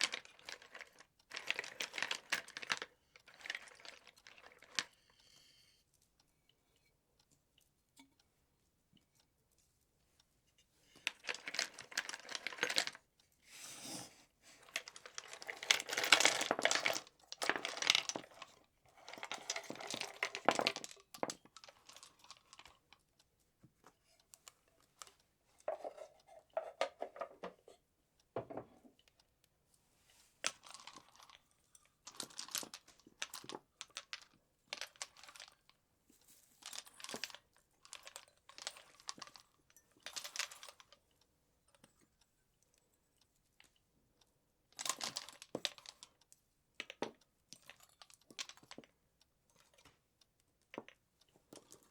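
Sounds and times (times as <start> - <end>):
rustling and crinkling decorations: 0.0 - 51.9.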